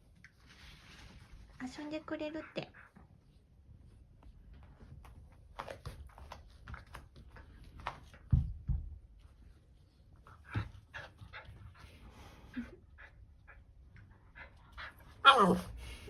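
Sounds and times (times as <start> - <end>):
puppy paws clicking and tapping: 4.2 - 9.3.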